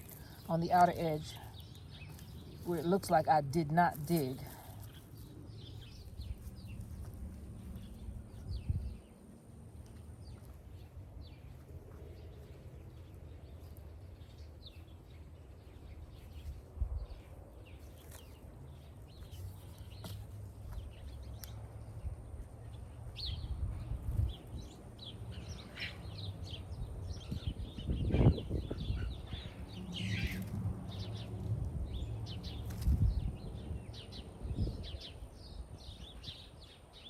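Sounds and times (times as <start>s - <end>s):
small birds chirping: 0.0s - 37.0s
steady low rumble: 4.6s - 14.4s.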